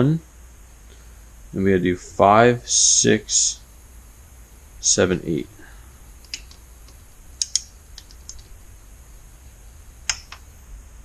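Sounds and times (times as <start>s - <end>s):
torque wrench clicking: 7.4s - 8.4s.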